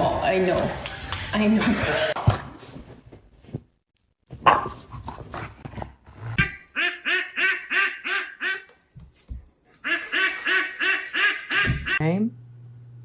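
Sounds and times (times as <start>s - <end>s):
duck quacking: 6.4s - 8.7s, 9.8s - 12.0s.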